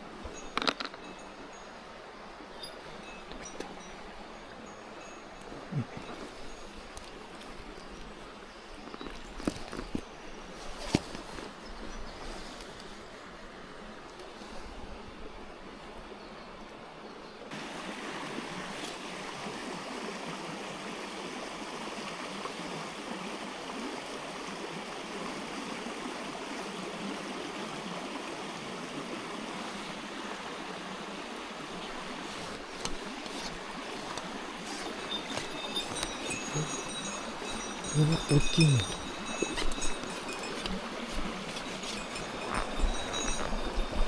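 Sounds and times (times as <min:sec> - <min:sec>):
water rushing over rocks: 0:31.0 - 0:44.0.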